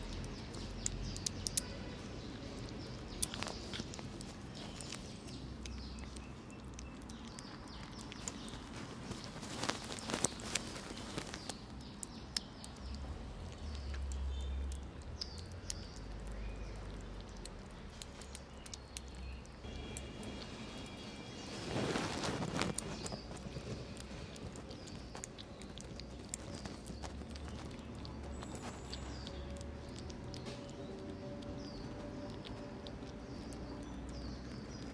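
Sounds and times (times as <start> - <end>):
kittens chewing and smacking: 0.0 - 34.9.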